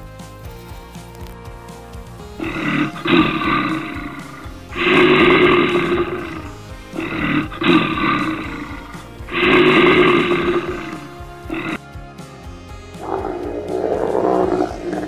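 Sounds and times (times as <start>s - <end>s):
background music: 0.0s - 15.0s
lion roaring: 2.4s - 11.8s, 13.0s - 15.0s.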